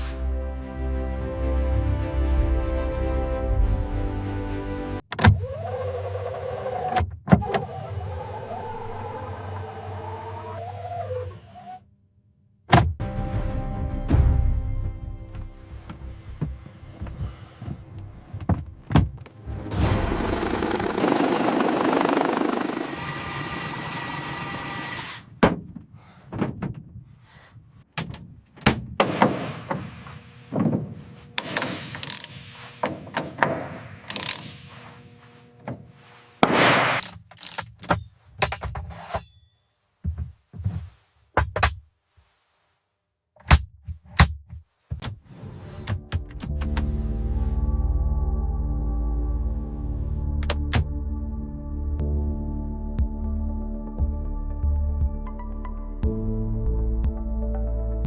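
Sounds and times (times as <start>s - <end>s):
knocks and clunks: 15.3s - 19.4s, 25.4s - 27.1s, 40.0s - 41.8s.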